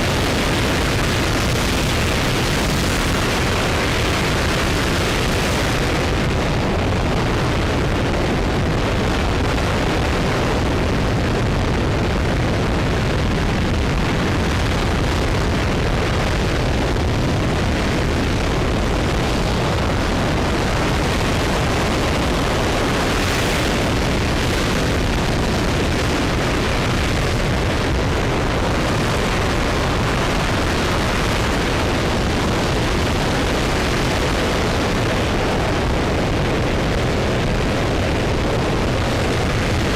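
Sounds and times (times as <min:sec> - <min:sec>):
rocket engine roaring: 0:00.0 - 0:39.9.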